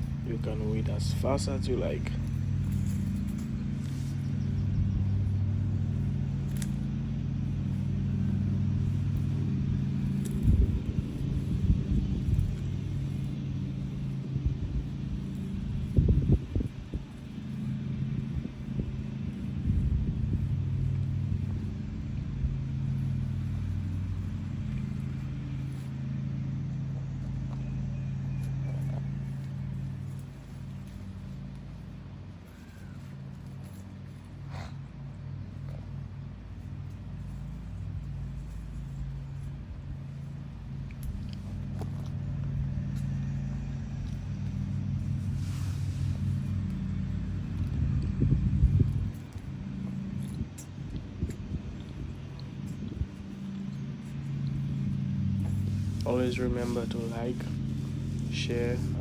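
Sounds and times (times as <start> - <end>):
low engine-like hum: 0.0 - 59.0.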